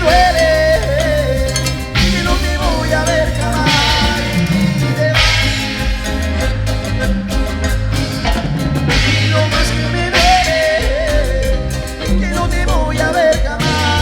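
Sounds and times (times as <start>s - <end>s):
gliding melodic lead: 0.0s - 10.2s
bass line: 0.0s - 14.0s
drum beat: 0.0s - 14.0s
live band playing latin dance music: 0.0s - 14.0s.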